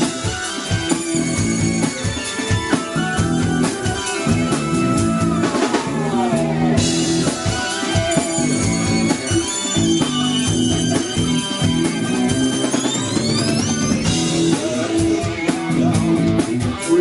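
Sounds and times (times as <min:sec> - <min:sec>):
rock band playing: 0:00.0 - 0:17.0.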